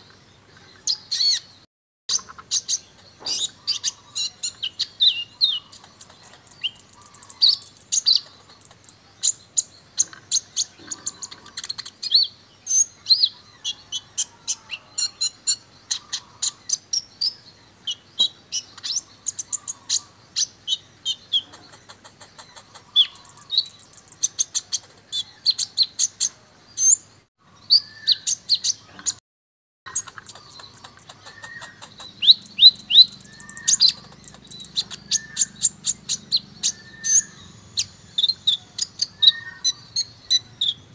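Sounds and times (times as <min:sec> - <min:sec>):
sunbird singing high chirps: 0:00.9 - 0:21.6, 0:22.5 - 0:29.0, 0:29.9 - 0:40.9.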